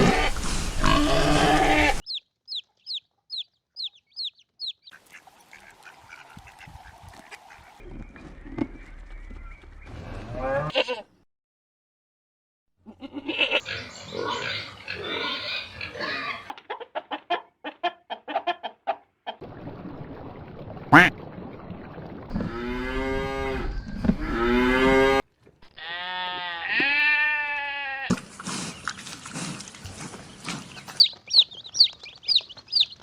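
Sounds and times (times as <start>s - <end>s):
rough noisy animal sound: 0.0s - 2.0s, 13.3s - 16.5s, 28.0s - 33.0s
short grunting animal calls: 20.9s - 21.1s.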